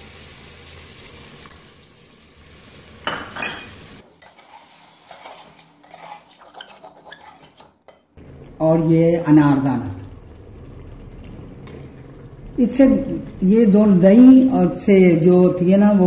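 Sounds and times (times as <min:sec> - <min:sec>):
food sizzling in a pot: 0:00.0 - 0:07.6, 0:08.2 - 0:15.3
metal spoon scraping a pot: 0:03.4 - 0:08.0.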